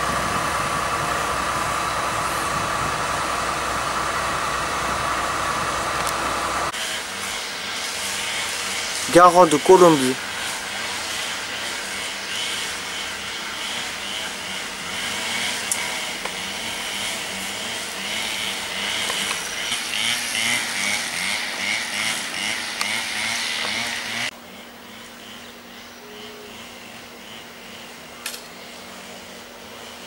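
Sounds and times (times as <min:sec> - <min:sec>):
freight train rumbling past: 0:00.0 - 0:09.1.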